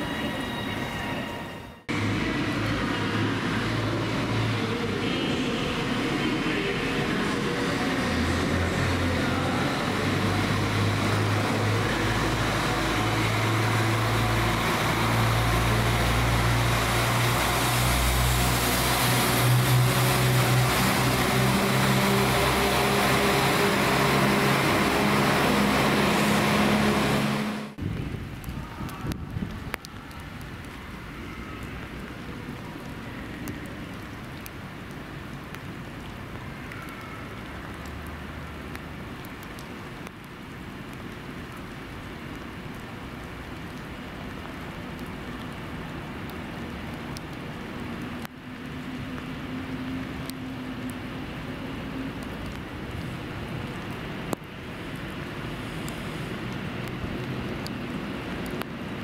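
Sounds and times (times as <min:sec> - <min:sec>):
train low hum: 0:00.0 - 0:27.8
wheel and rail noise: 0:00.0 - 0:59.0.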